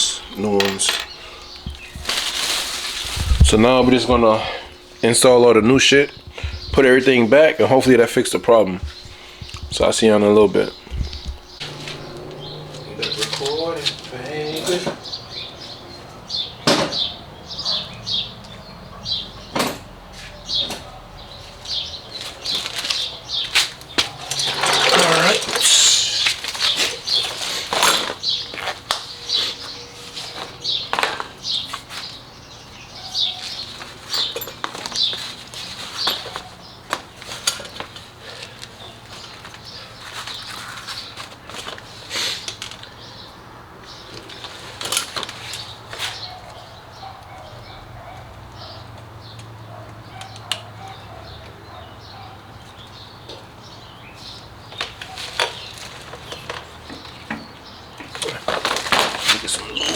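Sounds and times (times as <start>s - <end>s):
hand tools clicking and clinking: 0.4s - 2.3s, 11.6s - 15.0s, 22.6s - 29.0s
low steady hum: 8.8s - 16.0s.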